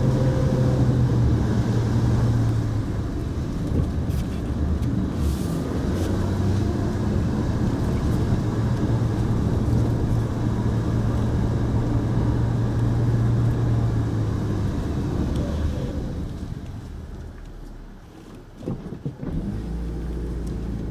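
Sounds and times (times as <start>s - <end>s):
tyre and road noise: 0.0s - 20.9s.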